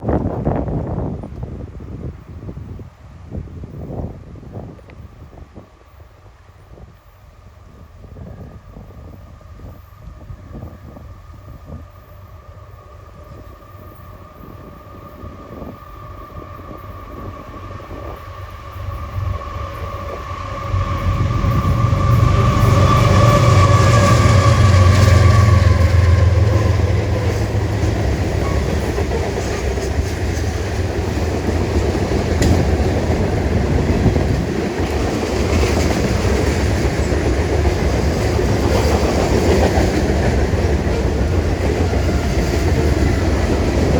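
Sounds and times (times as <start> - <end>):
locomotive rumble: 8.0 - 43.9
train wheels clattering on rails: 16.9 - 43.9.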